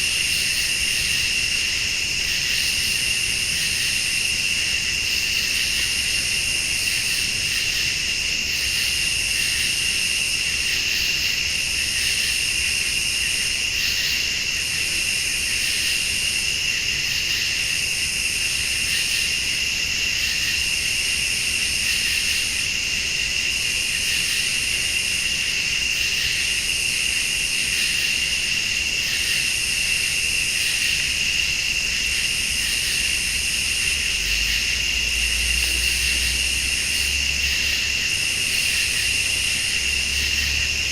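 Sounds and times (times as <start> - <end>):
crickets chirring: 0.0 - 40.9
high-pitched pulsing insect call: 0.0 - 40.9.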